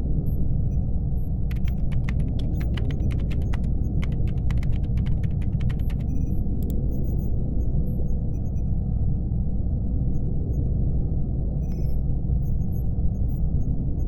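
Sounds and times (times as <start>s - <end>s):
low ambient hum: 1.4s - 14.0s
laptop keyboard typing: 1.5s - 6.8s.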